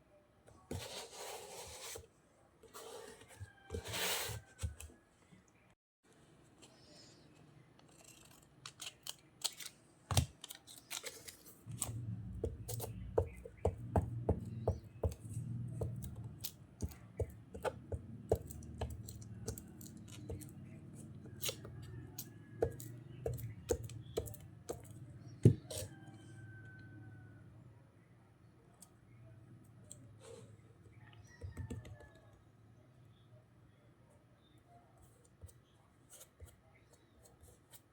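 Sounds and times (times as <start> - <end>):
scissors snipping paper: 7.8 - 13.5, 18.2 - 25.0.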